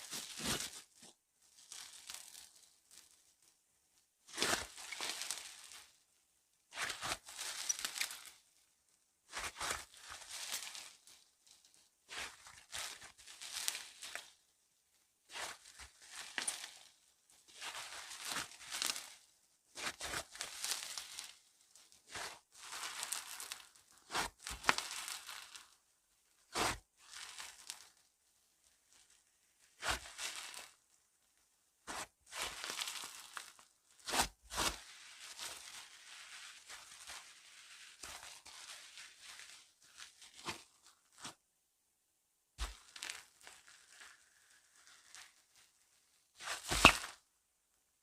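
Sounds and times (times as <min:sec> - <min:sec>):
sharp slime pops: 0:46.7 - 0:47.2.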